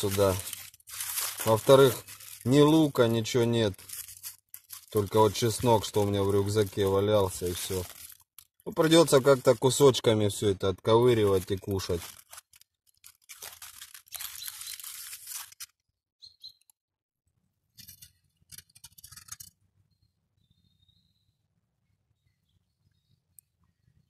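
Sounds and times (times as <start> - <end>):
aluminium foil crinkling: 0.0 - 15.9, 17.8 - 19.6
faint bird chirps: 16.2 - 16.7, 19.8 - 24.0.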